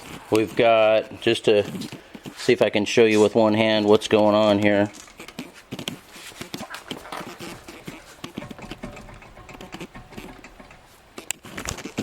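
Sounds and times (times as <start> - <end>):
hands handling objects clicking: 4.0 - 12.0.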